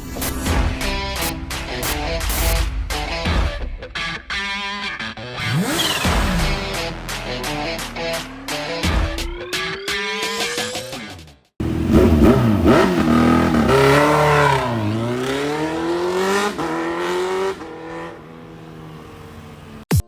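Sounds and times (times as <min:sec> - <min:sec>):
motorcycle engine revving: 0:05.4 - 0:08.8, 0:11.6 - 0:19.9.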